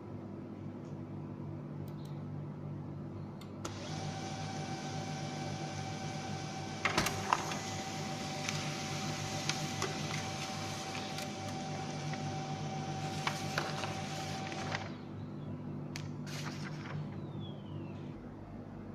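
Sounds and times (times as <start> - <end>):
small electric machine whining: 3.7 - 15.0.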